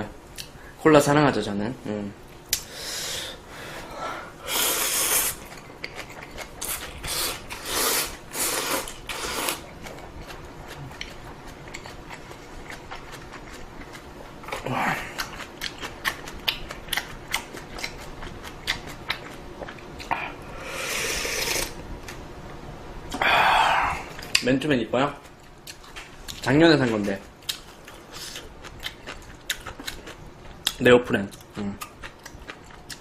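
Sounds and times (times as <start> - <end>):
person eating noodles: 4.4 - 15.9, 18.6 - 21.8
chewing and mouth noises: 5.1 - 20.4, 25.2 - 33.0.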